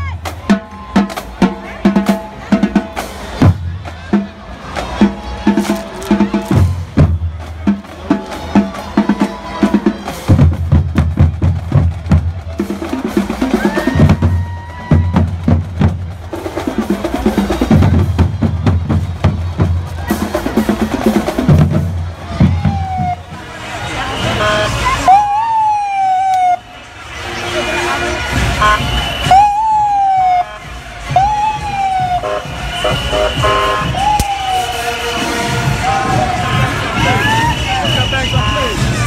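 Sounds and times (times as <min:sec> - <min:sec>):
bass drums beating: 0:00.0 - 0:23.5, 0:28.3 - 0:39.0
snare drums rolling: 0:00.2 - 0:23.5.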